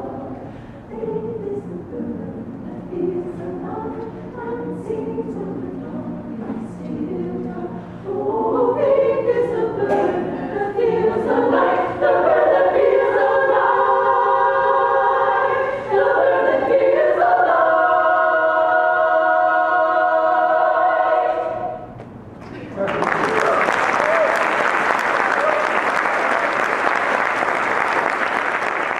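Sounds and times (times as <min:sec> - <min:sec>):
choir singing in harmony: 0:00.0 - 0:22.0.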